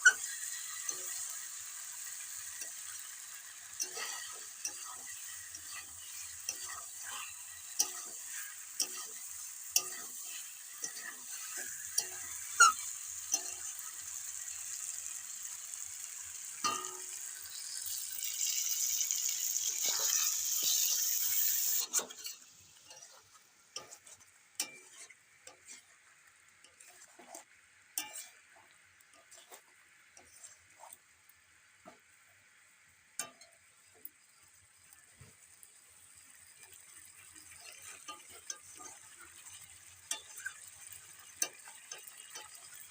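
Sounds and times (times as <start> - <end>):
spatula clicking against pan: 0.0 - 15.0, 36.6 - 42.9
spatula scraping pan: 0.0 - 31.0, 36.6 - 42.9
chicken sizzling in oil: 0.0 - 42.9.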